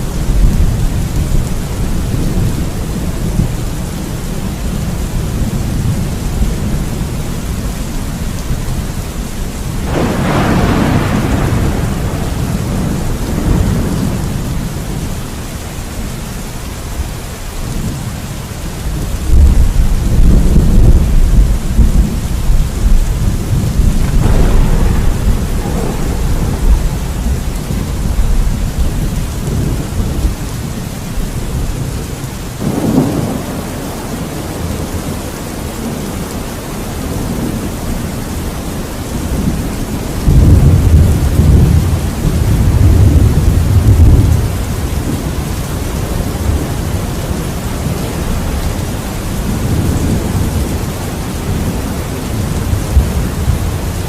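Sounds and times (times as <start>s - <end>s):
rolling thunder: 0.0s - 15.6s, 18.9s - 36.4s, 37.0s - 54.0s
steady rain: 0.0s - 54.0s
sharp thunderclap: 9.8s - 15.2s, 19.3s - 30.7s, 40.2s - 45.4s.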